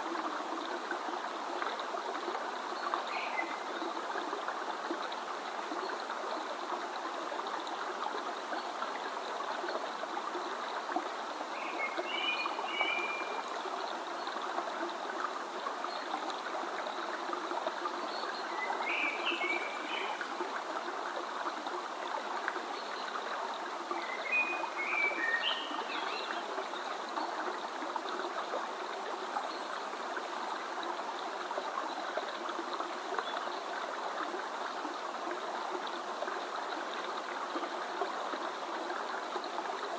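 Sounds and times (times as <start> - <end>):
stream flowing: 0.0 - 39.9
songbird singing: 24.0 - 26.4.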